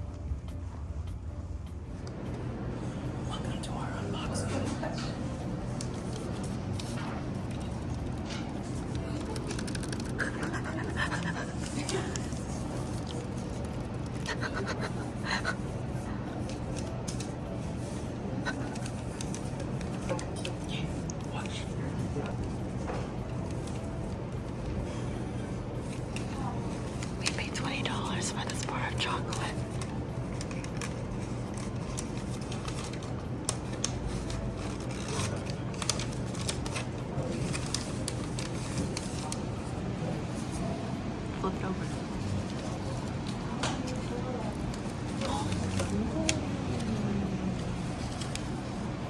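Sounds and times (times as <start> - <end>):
low room hum: 0.0 - 49.0
wrapper crinkling and tapping: 5.7 - 14.3, 28.6 - 39.7
wrapper crinkling: 5.8 - 14.2.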